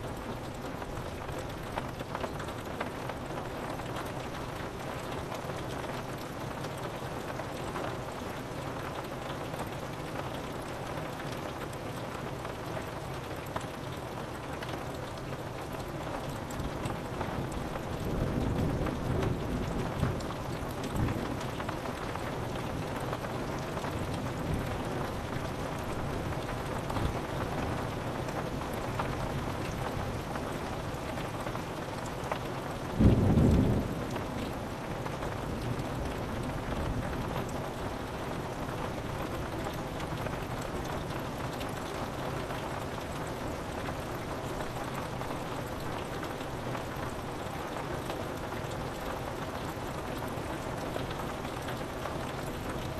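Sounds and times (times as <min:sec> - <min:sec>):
rain falling on a window: 0:00.0 - 0:52.9.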